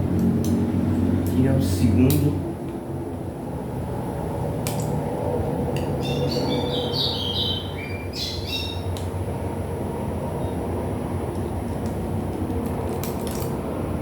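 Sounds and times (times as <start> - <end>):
songbird singing: 5.9 - 9.0.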